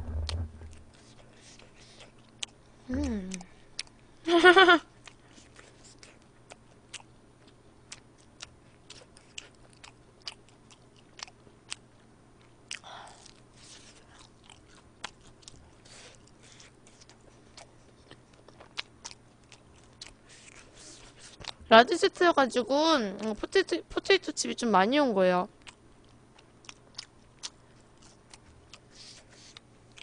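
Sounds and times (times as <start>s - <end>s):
wet mouth clicks of chewing: 14.1s - 20.6s, 25.6s - 30.0s.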